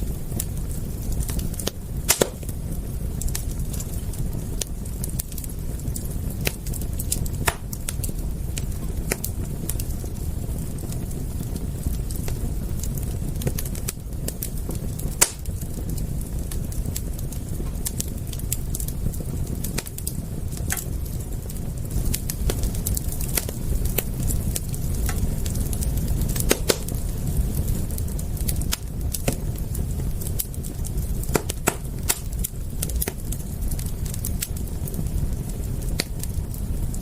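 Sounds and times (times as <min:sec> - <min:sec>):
low rumble of flames: 0:00.0 - 0:37.0
wood fire crackling: 0:00.0 - 0:37.0
sharp pops and snaps: 0:01.6 - 0:02.6, 0:07.4 - 0:07.8, 0:15.1 - 0:15.5, 0:20.7 - 0:20.9, 0:24.6 - 0:25.3, 0:26.3 - 0:27.0, 0:28.7 - 0:29.5, 0:31.2 - 0:33.3.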